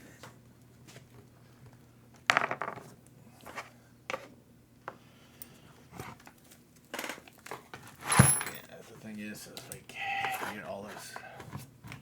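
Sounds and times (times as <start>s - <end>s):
tools clicking and knocking: 8.0s - 8.7s
small hard parts clattering: 8.0s - 8.8s.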